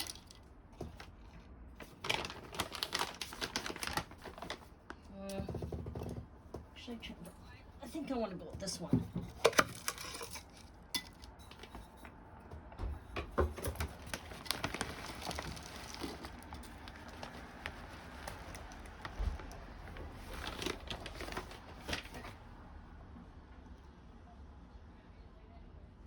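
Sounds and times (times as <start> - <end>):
plastic bag crinkling: 0.0 - 5.9, 9.3 - 12.0, 13.5 - 22.4.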